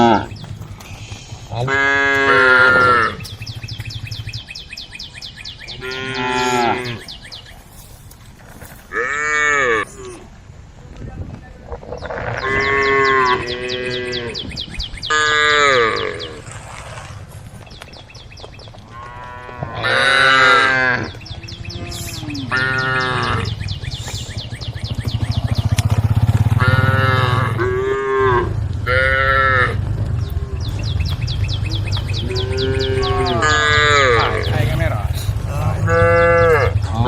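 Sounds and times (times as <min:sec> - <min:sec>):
cows mooing: 0:00.0 - 0:04.4, 0:05.7 - 0:07.2, 0:08.9 - 0:10.2, 0:12.0 - 0:16.6, 0:18.9 - 0:23.8, 0:25.0 - 0:37.0.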